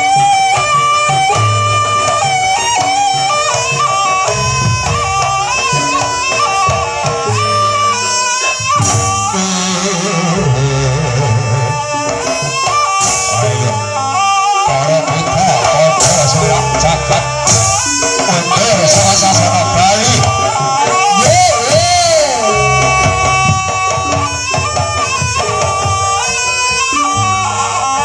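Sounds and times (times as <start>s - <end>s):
drums and gongs: 0.0s - 28.0s
reedy wind instrument melody: 0.0s - 28.0s.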